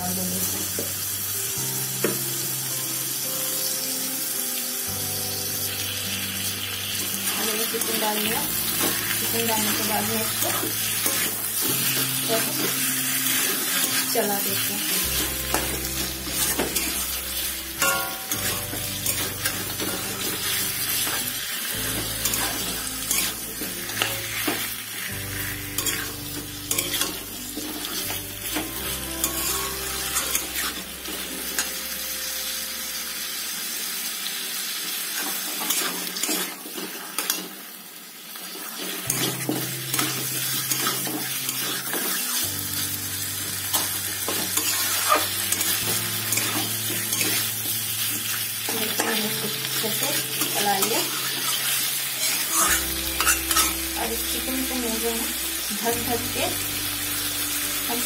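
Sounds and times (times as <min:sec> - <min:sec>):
chicken sizzling in hot oil: 0:00.0 - 0:58.0
spatula scraping a pan: 0:21.9 - 0:27.2, 0:50.4 - 0:53.8.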